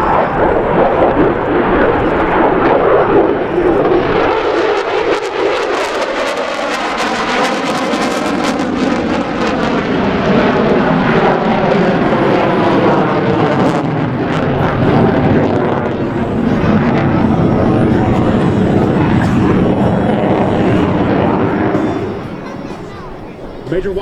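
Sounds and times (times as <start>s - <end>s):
jet engine roar: 0.0s - 24.0s
wavering sweeping tone: 11.8s - 23.9s.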